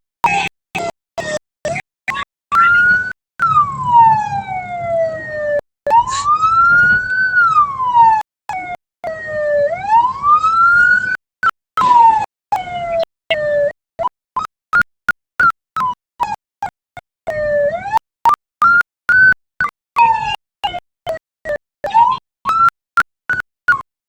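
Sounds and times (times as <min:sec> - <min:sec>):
vehicle siren wailing: 0:00.2 - 0:11.2, 0:11.8 - 0:13.8, 0:17.3 - 0:22.7.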